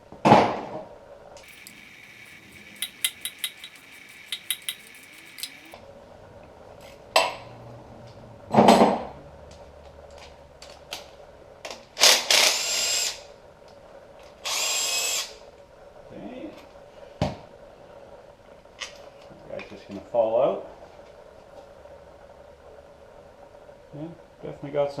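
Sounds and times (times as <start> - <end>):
light metal clinks: 1.5 - 5.8.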